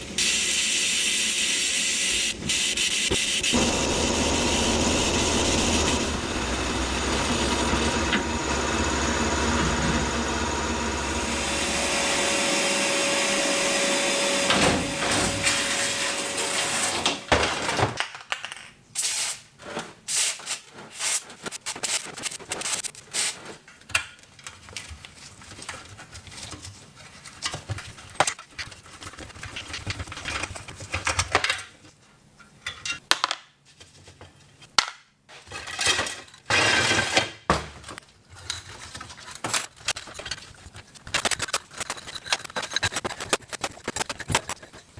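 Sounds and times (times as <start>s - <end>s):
motor running steadily: 2.1s - 15.4s
tools and metal parts clicking: 38.3s - 44.9s.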